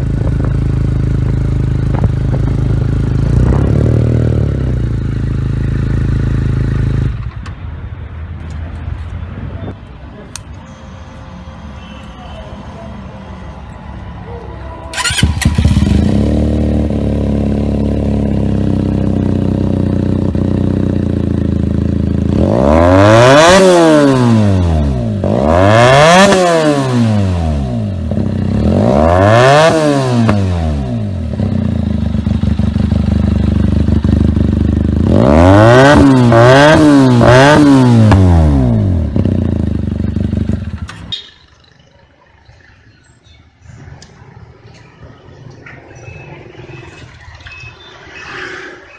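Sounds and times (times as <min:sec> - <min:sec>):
motorcycle engine revving: 0:00.0 - 0:07.4, 0:14.9 - 0:43.0.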